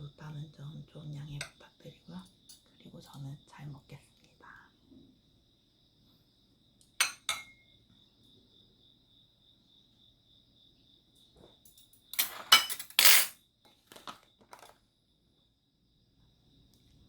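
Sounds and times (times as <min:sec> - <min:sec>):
cutlery clinking against dishes: 0:07.0 - 0:07.6, 0:11.7 - 0:13.4.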